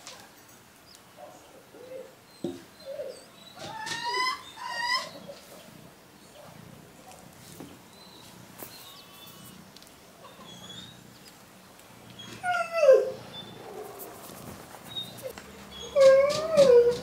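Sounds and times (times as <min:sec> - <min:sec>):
dog whining: 0:02.8 - 0:05.5, 0:10.2 - 0:11.0, 0:12.1 - 0:14.0, 0:14.9 - 0:17.0.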